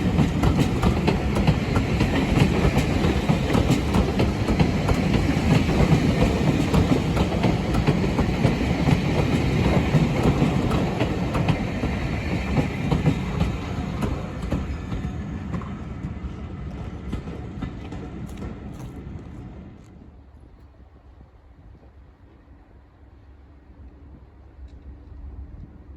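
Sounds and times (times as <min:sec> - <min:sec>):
wheels clicking over rail joints: 0:00.0 - 0:19.9
diesel train rumbling: 0:00.0 - 0:25.9.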